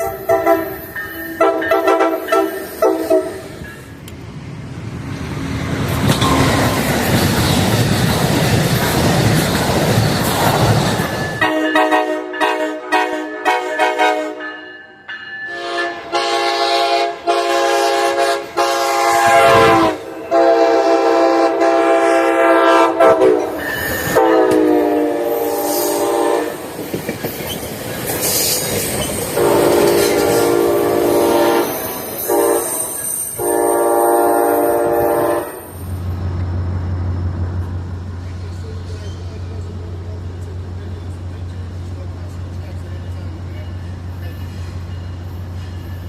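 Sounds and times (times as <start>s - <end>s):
locomotive horn blasts: 0.0s - 3.5s, 11.4s - 14.5s, 15.5s - 26.6s, 29.4s - 35.7s.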